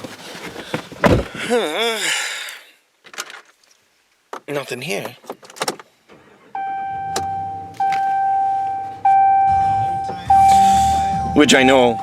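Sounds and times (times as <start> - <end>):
car engine starting and running: 6.1 - 12.0
vehicle warning chime: 6.6 - 12.0.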